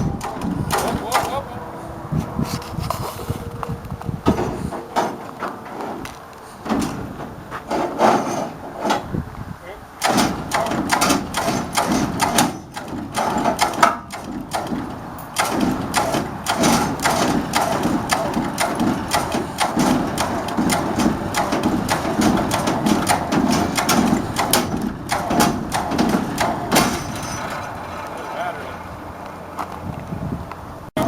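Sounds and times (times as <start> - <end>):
winch clicking and knocking: 0.0 - 1.4, 10.0 - 28.5.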